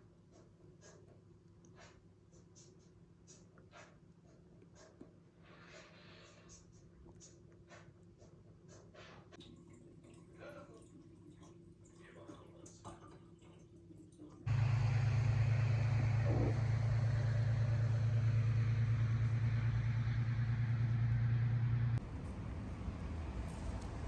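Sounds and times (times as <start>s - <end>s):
electric appliance buzzing: 14.5s - 20.6s.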